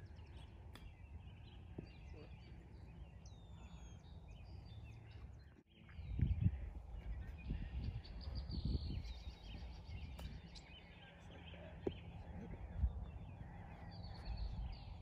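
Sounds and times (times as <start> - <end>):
birds chirping and calling: 0.0 - 15.0
wind gusts on microphone: 5.9 - 10.8, 12.2 - 15.0.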